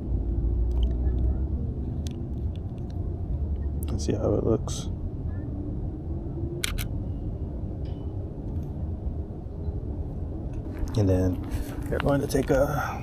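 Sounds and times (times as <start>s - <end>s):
steady low rumble: 0.0s - 13.0s
camera shutter clicks: 6.6s - 6.9s.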